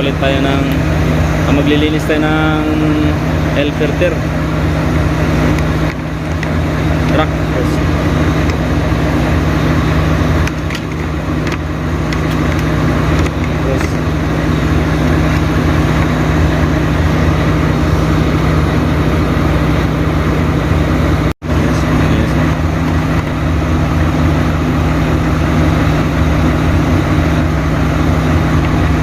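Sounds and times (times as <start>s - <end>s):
diesel engine idling: 0.0s - 29.0s.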